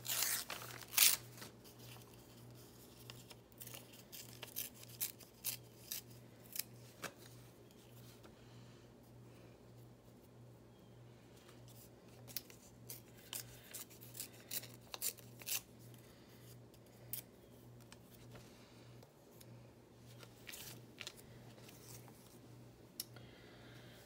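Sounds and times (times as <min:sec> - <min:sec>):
faint low hum: 0:00.0 - 0:24.0
scissors snipping paper: 0:03.1 - 0:06.7, 0:12.3 - 0:15.7.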